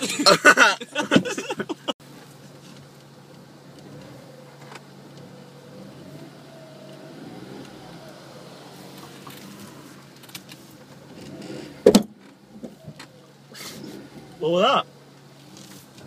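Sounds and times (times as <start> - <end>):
young man laughing: 0.0 - 2.0
car engine idling: 0.0 - 16.0.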